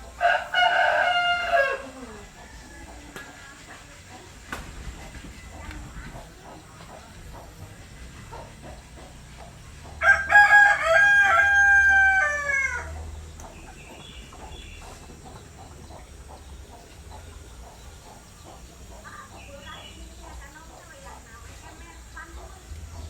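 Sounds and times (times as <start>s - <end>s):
rooster crowing: 0.2s - 3.2s, 10.0s - 13.1s.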